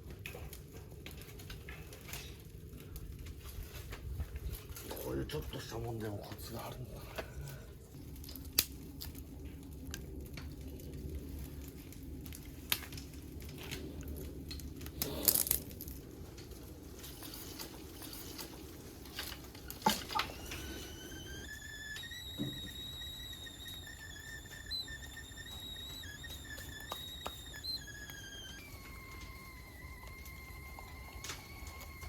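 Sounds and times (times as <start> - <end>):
wood fire burning in stove: 0.0 - 32.0
thin rising whistle: 19.6 - 32.0.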